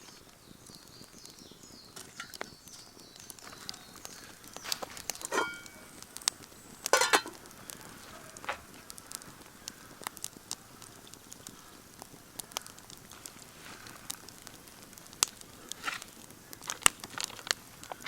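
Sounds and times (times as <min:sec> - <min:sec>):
campfire crackling: 0:00.0 - 0:18.0
fire sharp pops: 0:00.0 - 0:18.0.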